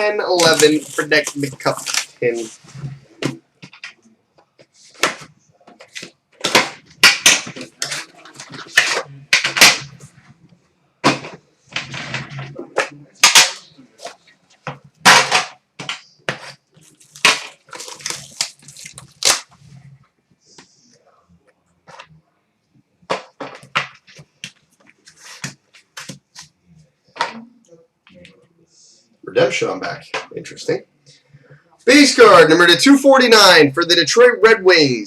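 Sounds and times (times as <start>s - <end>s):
packaging snapping and crinkling: 0.3s - 2.4s, 16.8s - 19.5s.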